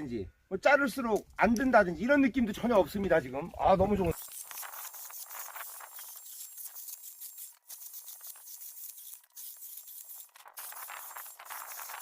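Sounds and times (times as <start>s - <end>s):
chainsaw cutting wood: 4.2s - 12.0s.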